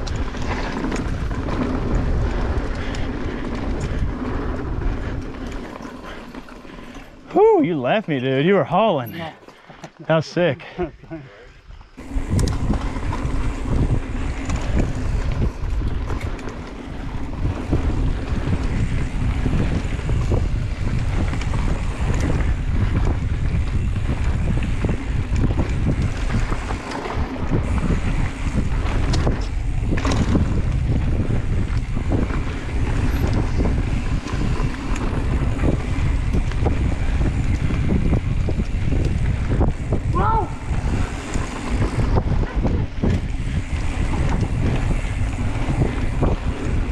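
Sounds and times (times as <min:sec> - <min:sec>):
wind rushing over microphone: 0:00.0 - 0:06.4, 0:10.8 - 0:46.9
mountain bike rumble: 0:00.0 - 0:46.9
bike knocks and rattles: 0:12.0 - 0:46.9.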